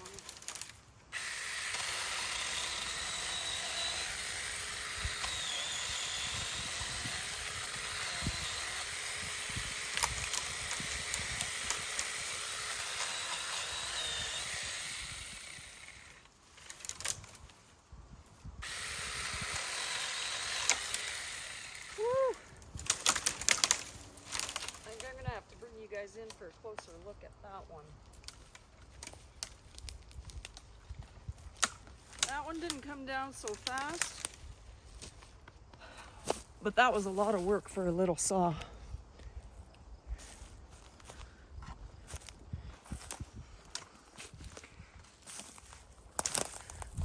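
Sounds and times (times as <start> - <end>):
electric chainsaw cutting wood: 0.5 - 16.3, 18.6 - 22.1.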